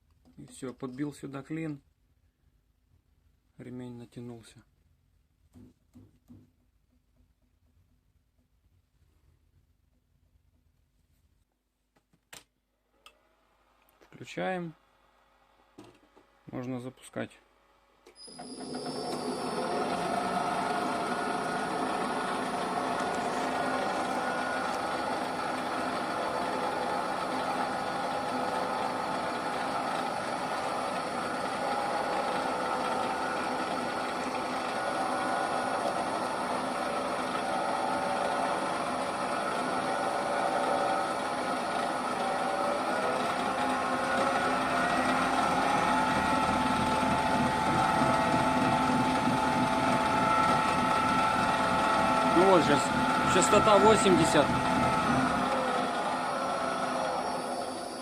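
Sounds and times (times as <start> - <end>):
drill press motor whining: 18.0 - 58.0.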